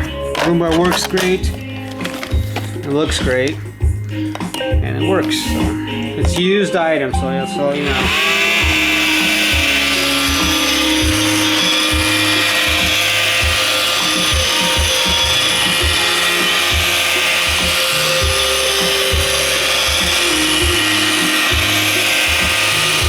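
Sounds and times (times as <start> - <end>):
robot vacuum whirring: 7.7 - 23.0.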